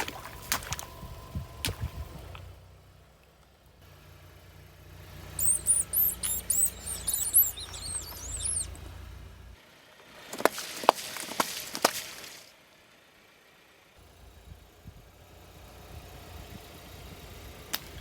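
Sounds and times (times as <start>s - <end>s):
car engine running low: 0.1s - 9.6s, 13.5s - 18.0s
high-pitched squeaks: 5.4s - 8.9s.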